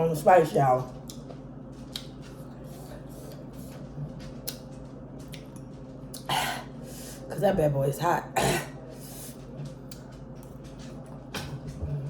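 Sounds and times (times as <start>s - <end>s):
steady low hum: 0.0s - 12.0s
chewing food: 0.8s - 6.8s, 8.8s - 12.0s.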